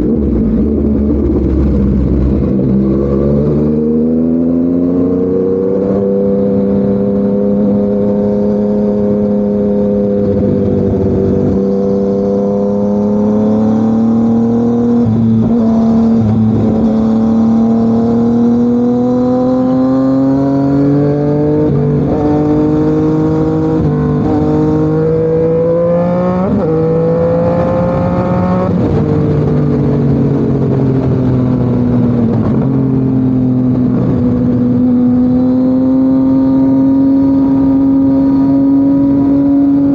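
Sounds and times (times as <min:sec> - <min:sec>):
motorcycle engine riding: 0:00.0 - 0:39.9.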